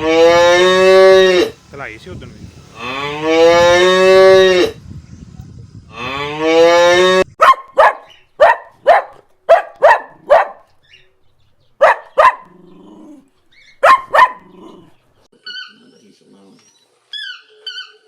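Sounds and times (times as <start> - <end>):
dog barking: 7.4 - 10.7, 11.8 - 12.5, 13.8 - 14.6.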